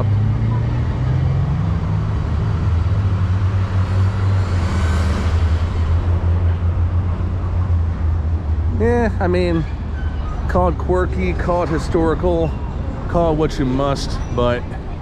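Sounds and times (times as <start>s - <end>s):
vehicle passing by: 0.0s - 9.4s
low rumble of street traffic: 0.0s - 15.0s.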